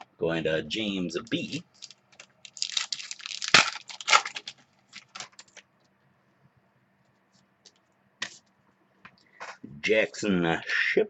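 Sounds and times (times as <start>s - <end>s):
trading cards rustling: 1.5s - 5.6s.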